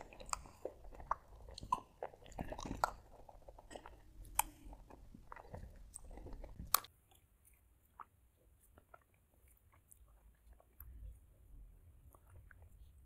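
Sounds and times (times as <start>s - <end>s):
wet mouth clicks: 0.0s - 8.1s
person chewing with crunches: 0.0s - 13.0s.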